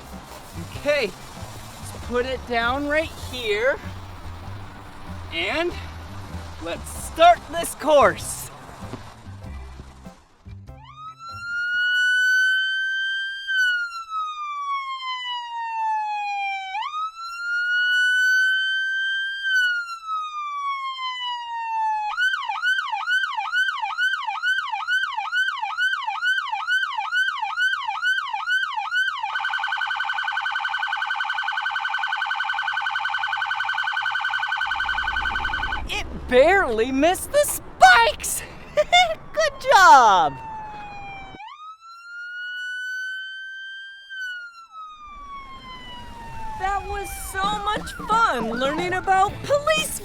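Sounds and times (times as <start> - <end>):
police siren wailing and yelping: 10.8 - 36.5, 37.1 - 50.0.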